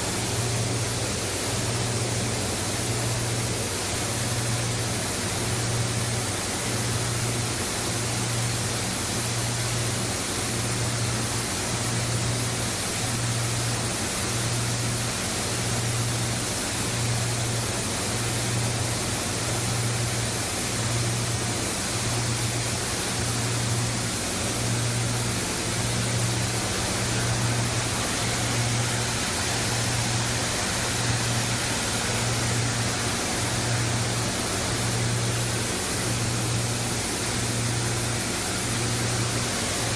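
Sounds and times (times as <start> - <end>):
machine and water rushing: 10.6 - 39.9.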